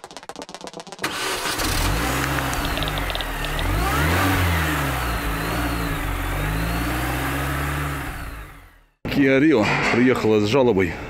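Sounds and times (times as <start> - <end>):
car engine revving: 1.0 - 9.0.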